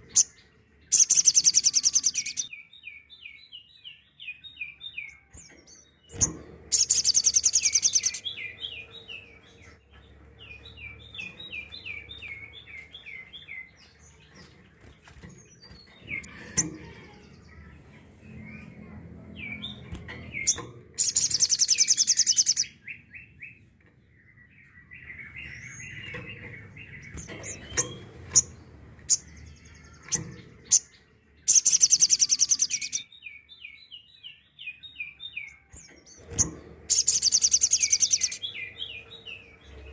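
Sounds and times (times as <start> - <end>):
harsh rattling bird call: 0.9 - 2.5, 36.9 - 39.9.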